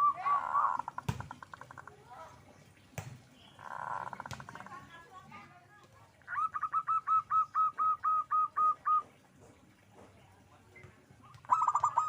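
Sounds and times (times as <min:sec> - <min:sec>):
dove calling in hooked notes: 0:00.0 - 0:02.0, 0:06.2 - 0:09.3, 0:11.4 - 0:12.0.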